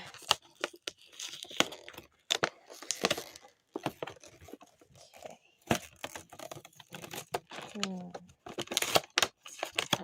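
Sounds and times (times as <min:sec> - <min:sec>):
packaging crinkling and tearing: 0:00.0 - 0:10.0.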